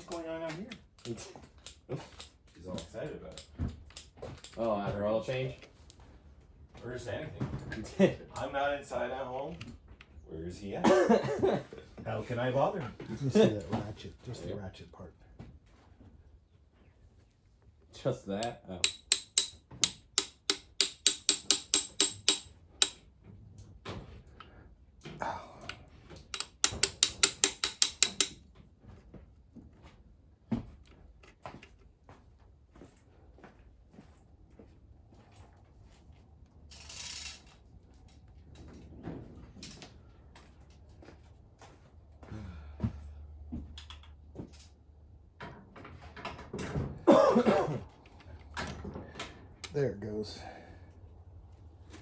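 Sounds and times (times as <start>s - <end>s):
hand tools clicking and knocking: 0.0s - 5.0s, 18.3s - 23.2s, 24.3s - 28.6s, 47.4s - 49.8s
ratchet wrench clicking: 18.4s - 23.0s, 26.3s - 28.4s.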